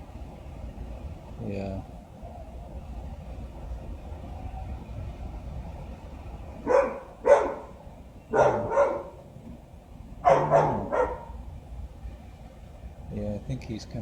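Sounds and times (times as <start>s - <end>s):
steady low rumble: 0.0s - 14.0s
dog barking: 6.6s - 9.3s, 10.2s - 11.5s.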